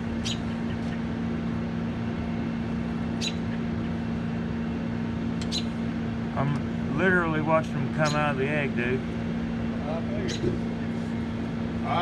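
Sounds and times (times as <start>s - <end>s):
low machine hum: 0.0s - 12.0s
high bird chirps: 0.2s - 0.9s, 3.2s - 3.6s.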